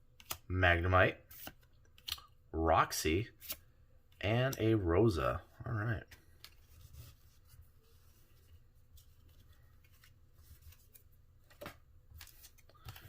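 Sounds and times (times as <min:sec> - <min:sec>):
trading cards rubbing and clicking: 0:03.3 - 0:03.6.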